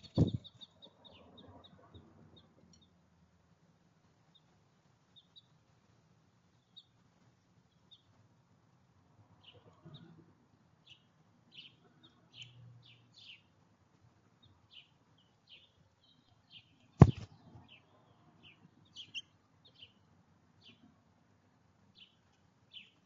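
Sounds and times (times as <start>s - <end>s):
small songbirds chirping: 0.0s - 3.0s, 4.1s - 8.4s, 9.3s - 23.0s
sharp thump: 0.1s - 0.5s, 17.0s - 17.3s.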